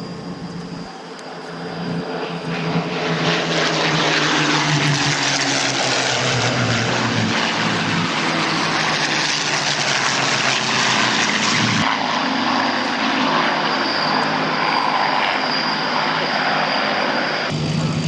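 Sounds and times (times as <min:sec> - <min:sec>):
propeller aircraft engines: 0:00.0 - 0:18.0
thin high whine: 0:00.0 - 0:18.0.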